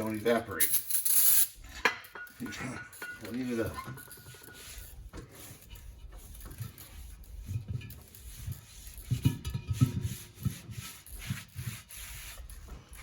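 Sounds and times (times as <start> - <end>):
rag rubbing inside brake drum: 2.8 - 13.0.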